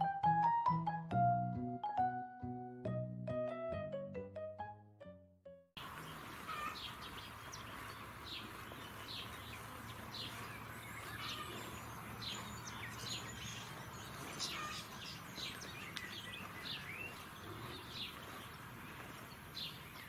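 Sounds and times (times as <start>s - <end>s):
outdoor background hiss: 5.8s - 10.9s
small birds chirping: 5.8s - 20.0s.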